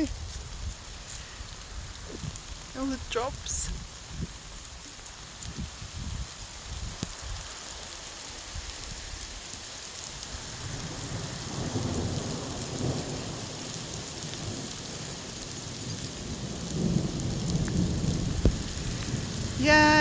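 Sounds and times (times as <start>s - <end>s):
heavy rain falling: 0.0s - 20.0s
thunder rumbling: 10.4s - 20.0s.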